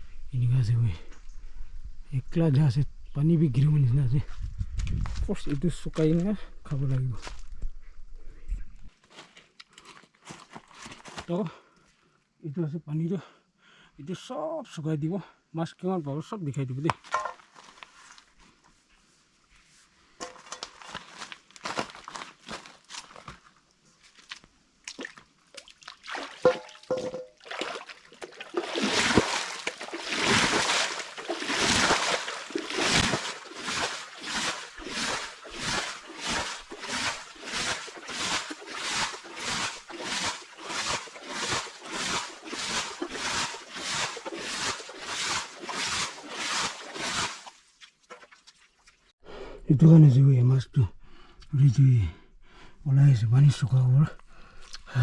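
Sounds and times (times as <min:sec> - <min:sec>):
water sloshing and splashing: 0:24.2 - 0:49.1.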